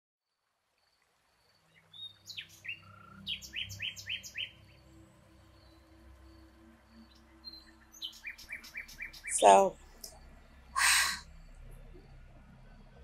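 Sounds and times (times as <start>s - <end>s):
birds chirping: 1.8s - 12.1s.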